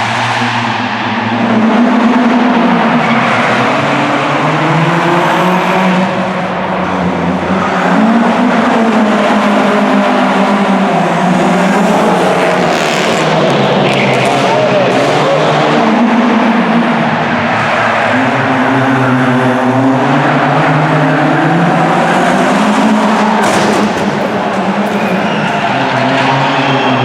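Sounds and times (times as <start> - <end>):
car engines revving hard: 0.0 - 27.0.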